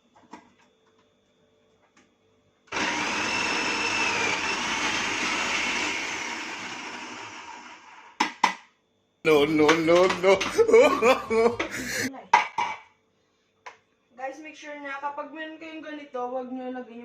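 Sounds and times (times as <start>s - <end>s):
electric food chopper motor running: 2.7s - 8.2s.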